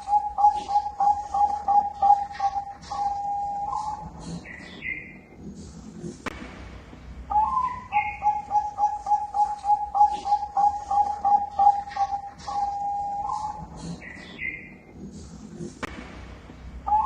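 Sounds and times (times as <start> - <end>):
dove cooing: 0.0 - 5.2, 7.3 - 15.1.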